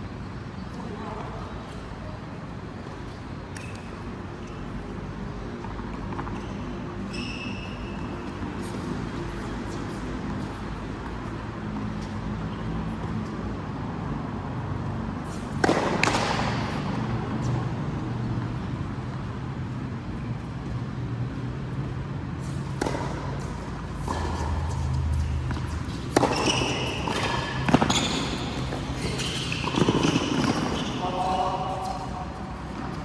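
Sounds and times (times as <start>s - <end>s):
racket hitting ball: 15.6s - 17.2s, 22.7s - 33.0s
ball bouncing on court: 15.6s - 17.7s, 22.7s - 33.0s.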